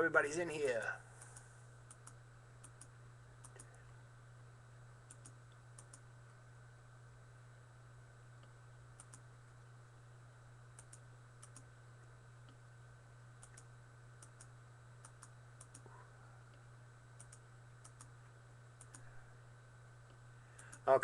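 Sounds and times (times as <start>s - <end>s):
low electrical hum: 0.0s - 21.0s
computer mouse clicks: 1.2s - 3.8s, 5.1s - 6.0s, 9.0s - 9.2s, 10.8s - 11.7s, 13.4s - 15.9s, 17.2s - 18.1s, 18.8s - 19.1s.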